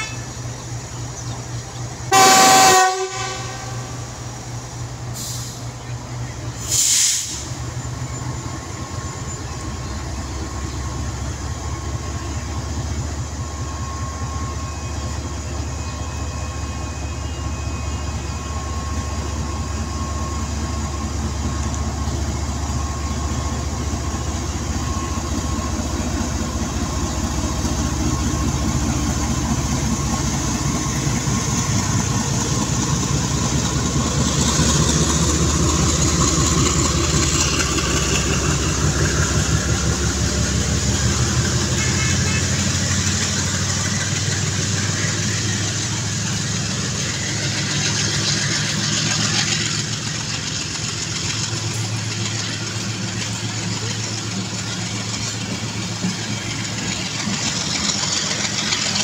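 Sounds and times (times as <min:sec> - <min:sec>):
diesel locomotive engine: 0:00.0 - 0:59.0
train wheels clattering: 0:19.2 - 0:59.0.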